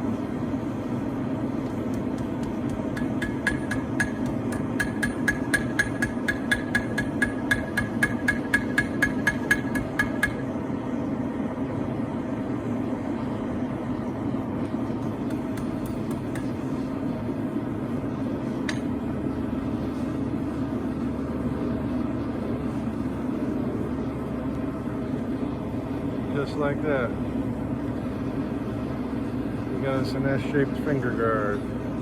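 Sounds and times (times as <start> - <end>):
forge running steadily: 0.0 - 32.0
hammer striking hot steel on anvil: 1.6 - 10.6, 15.2 - 16.7, 18.6 - 19.0.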